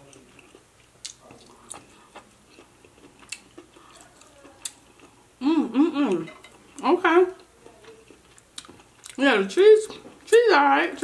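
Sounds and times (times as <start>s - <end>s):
person chewing: 0.0s - 5.3s, 7.4s - 9.2s.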